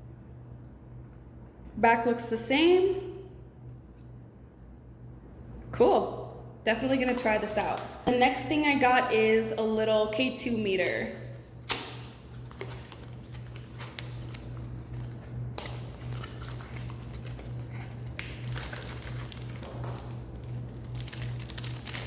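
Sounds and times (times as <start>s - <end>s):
steady low hum: 0.0s - 22.0s
packaging rustling and crinkling: 11.3s - 22.0s.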